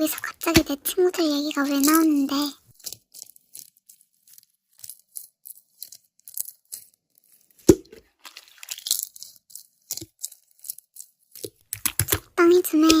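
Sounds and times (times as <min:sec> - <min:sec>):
slime crackling and popping: 0:07.6 - 0:12.2.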